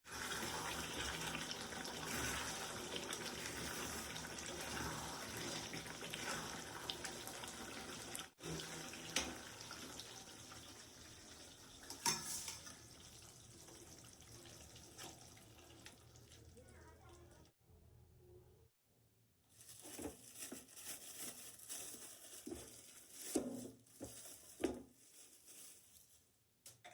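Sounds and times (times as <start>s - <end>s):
tap water splashing into sink: 6.9s - 10.2s.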